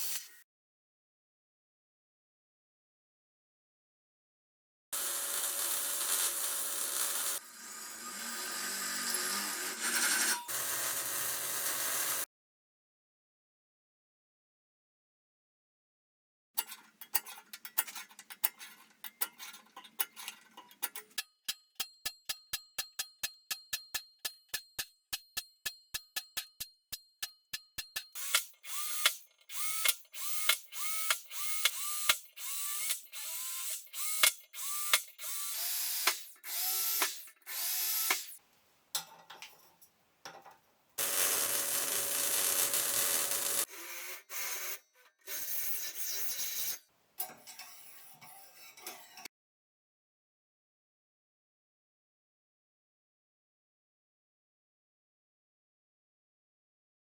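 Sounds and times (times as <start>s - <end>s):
small motor tool running: 5.0s - 12.2s, 28.2s - 38.3s, 41.0s - 46.7s.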